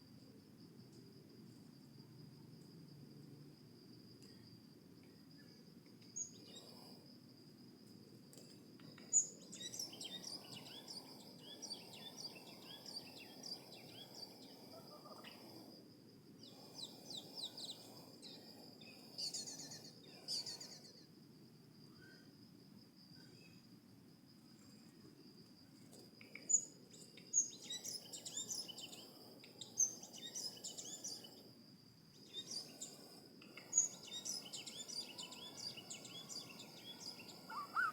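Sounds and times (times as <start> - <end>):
crickets trilling: 0.0 - 37.9
birds chirping: 33.6 - 37.9.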